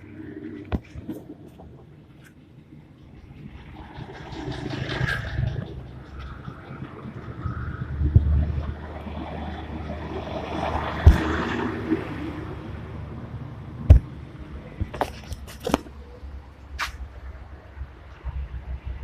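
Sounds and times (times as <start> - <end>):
tractor engine rumbling: 0.0 - 19.0
heavy thumps: 13.8 - 14.2.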